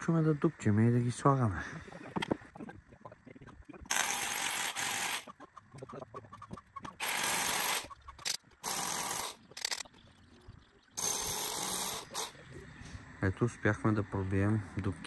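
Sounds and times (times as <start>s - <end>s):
hammer drill boring into concrete: 3.9s - 5.3s, 7.0s - 9.8s, 11.0s - 12.4s
clicks and handling: 9.4s - 10.0s.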